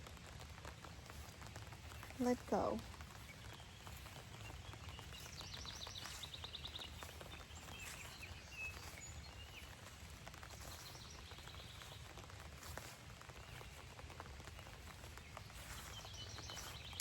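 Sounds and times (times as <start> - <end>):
light rain pattering: 0.0 - 17.0
birds chirping: 1.0 - 17.0.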